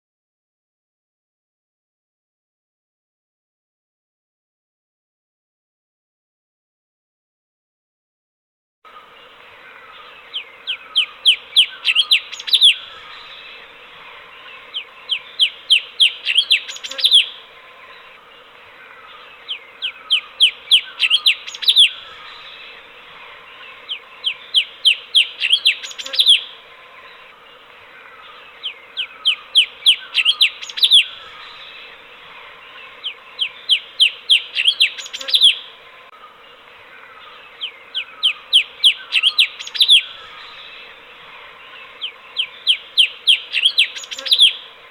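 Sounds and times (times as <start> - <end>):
bulbul singing: 8.9 - 44.9
steady hiss: 8.9 - 44.9.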